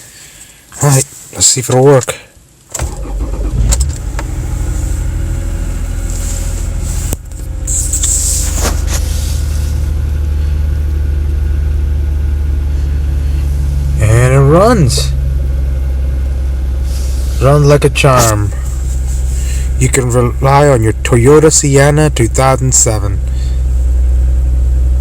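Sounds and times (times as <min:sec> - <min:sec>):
car engine cranking and idling: 0:02.5 - 0:25.0.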